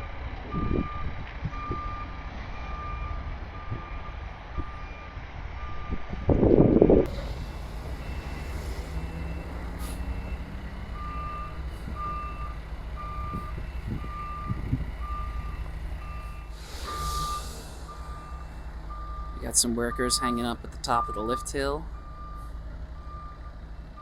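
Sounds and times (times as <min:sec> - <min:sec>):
engine rumbling: 0:00.0 - 0:24.0
reversing alarm beeping: 0:00.5 - 0:06.4, 0:07.1 - 0:24.0
higher-pitched backup beep: 0:07.4 - 0:22.4.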